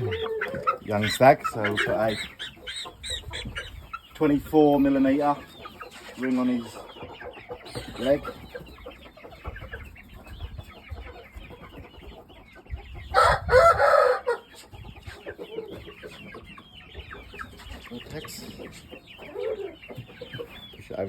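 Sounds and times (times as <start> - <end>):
chickens clucking and cheeping: 0.0 - 21.0
rooster crow: 13.2 - 14.4.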